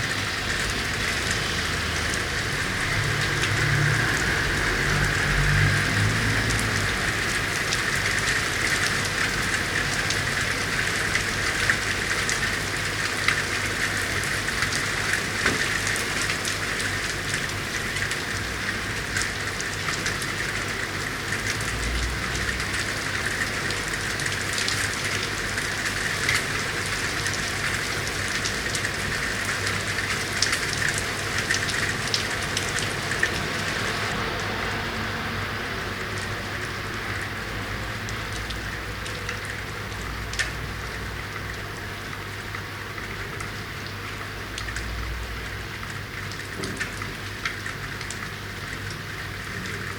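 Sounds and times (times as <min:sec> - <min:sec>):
rain falling: 0:00.0 - 0:49.9
raindrops ticking: 0:36.2 - 0:49.9.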